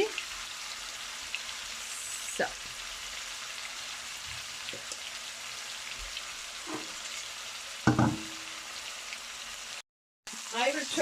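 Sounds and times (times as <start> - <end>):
chicken sizzling in a pan: 0.0 - 11.0
faint knock: 7.9 - 8.4
sharp knock with ring: 7.9 - 8.4.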